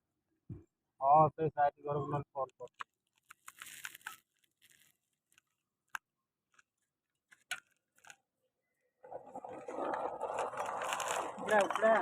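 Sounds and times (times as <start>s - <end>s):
road-repair scraping and crunching: 9.0s - 12.0s.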